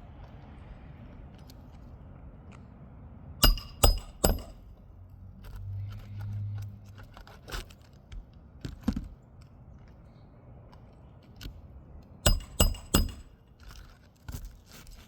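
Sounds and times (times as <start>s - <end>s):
hammer strikes with metallic ring: 3.4s - 4.7s, 12.2s - 13.3s.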